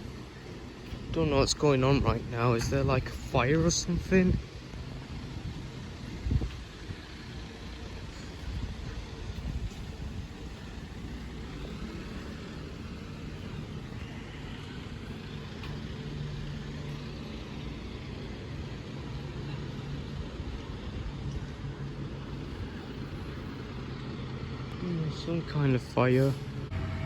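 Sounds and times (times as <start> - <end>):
wind rumble on microphone: 0.0 - 14.2
vehicle engine humming: 0.0 - 27.0.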